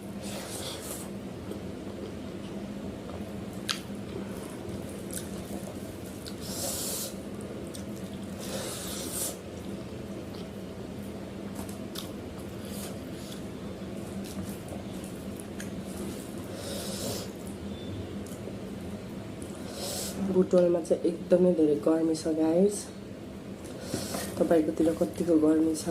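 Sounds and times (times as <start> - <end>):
steady low hum: 0.0 - 25.9
wet chewing of food: 0.2 - 10.6, 11.5 - 17.6.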